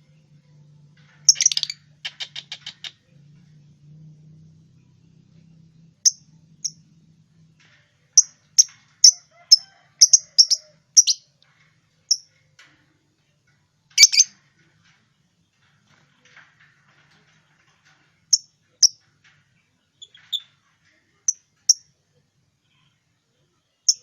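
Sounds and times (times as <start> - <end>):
lovebird chirping: 1.3 - 2.9, 10.0 - 11.2, 14.0 - 14.3.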